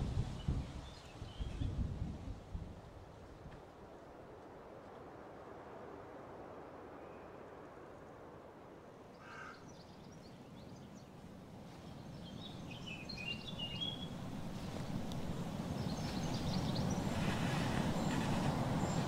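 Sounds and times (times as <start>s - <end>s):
birds chirping: 11.8s - 19.0s
low rumble of road vehicle: 13.7s - 19.0s.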